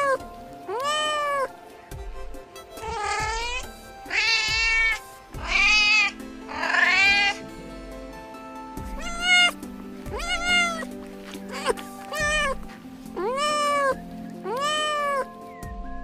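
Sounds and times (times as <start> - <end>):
cats meowing: 0.0 - 1.6, 2.8 - 7.4, 8.8 - 15.3
background music with held notes: 0.0 - 16.0.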